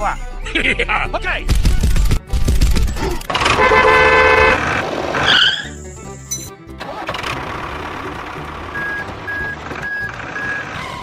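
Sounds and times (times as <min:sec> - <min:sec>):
background music: 0:00.0 - 0:11.0
truck engine starting: 0:03.2 - 0:05.8, 0:06.7 - 0:11.0.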